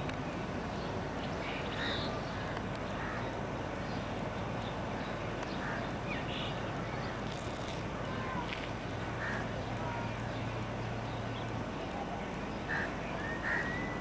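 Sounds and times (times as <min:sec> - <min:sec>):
short bird calls: 0:12.7 - 0:14.0.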